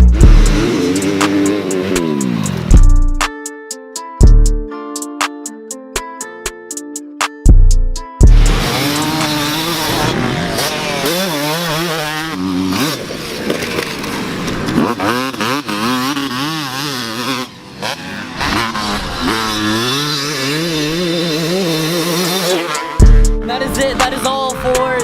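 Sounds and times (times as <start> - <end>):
dirt bike engines revving: 0.0 - 3.0, 8.2 - 25.0.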